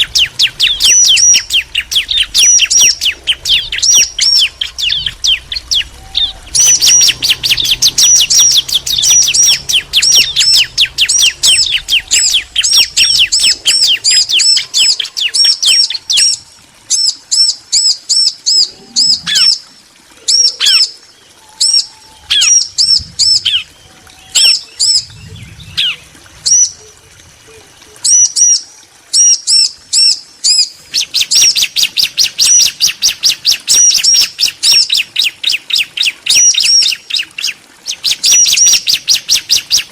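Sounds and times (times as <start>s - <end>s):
birds chirping sharply: 0.0s - 26.8s.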